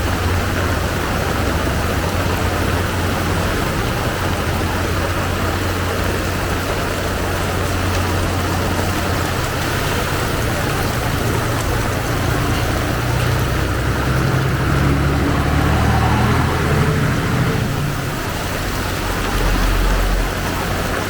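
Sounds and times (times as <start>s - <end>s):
heavy rain hiss: 0.0s - 21.0s
vehicle engine running: 0.0s - 21.0s.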